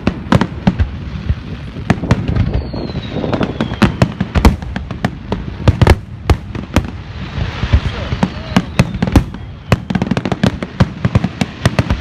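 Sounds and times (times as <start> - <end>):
fireworks bangs and crackling: 0.0 - 12.0
falling firework whistle: 2.0 - 4.6, 7.1 - 12.0.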